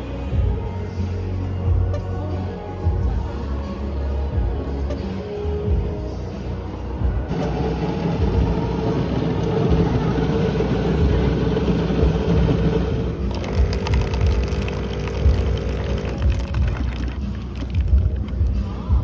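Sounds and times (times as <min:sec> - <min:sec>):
machine hum with rapid ticking: 0:07.0 - 0:19.0
espresso machine grinding: 0:07.3 - 0:18.5.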